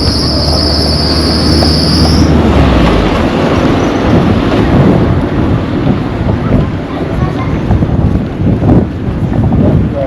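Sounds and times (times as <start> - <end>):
high-pitched insect shrill: 0.0 - 2.3
wind noise on microphone: 0.0 - 10.0.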